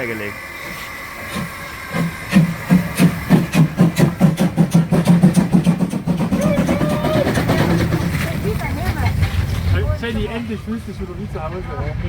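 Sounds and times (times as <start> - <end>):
steam locomotive chuffing: 0.0 - 12.0.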